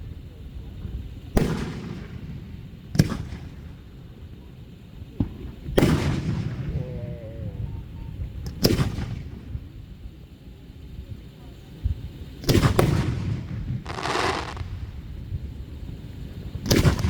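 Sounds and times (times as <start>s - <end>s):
small fireworks cracks: 0.0s - 7.0s, 8.2s - 10.3s, 11.1s - 17.0s
fireworks booming: 5.2s - 9.4s, 12.5s - 17.0s.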